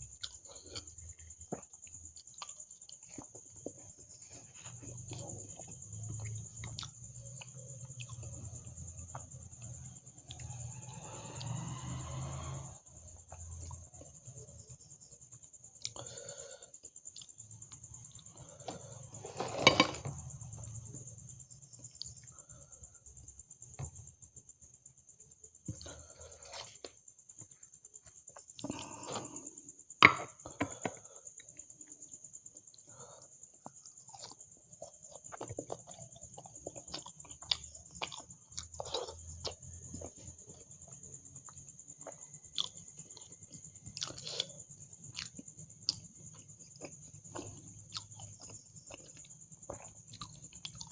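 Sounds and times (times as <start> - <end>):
chewing and mouth clicks: 0.1 - 10.6, 16.8 - 18.6, 33.5 - 50.9.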